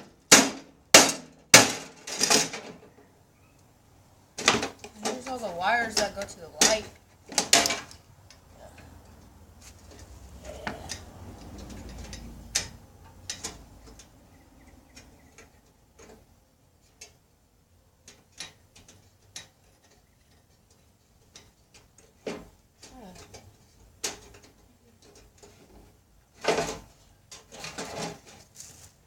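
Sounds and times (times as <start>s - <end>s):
small clicks and knocks: 4.4s - 14.2s, 14.8s - 17.2s, 18.0s - 28.5s.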